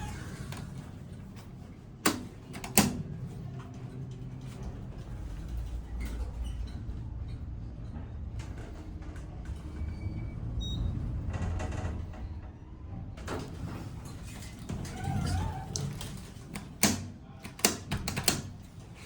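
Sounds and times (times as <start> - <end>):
elevator humming: 0.0 - 19.0
elevator sliding doors: 0.0 - 19.0.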